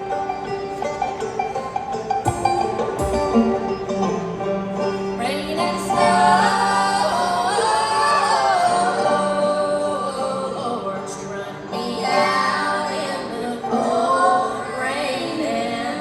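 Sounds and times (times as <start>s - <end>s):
bending melody line: 0.0s - 9.7s
banjo and guitar picking: 0.0s - 16.0s
string band playing: 0.0s - 16.0s.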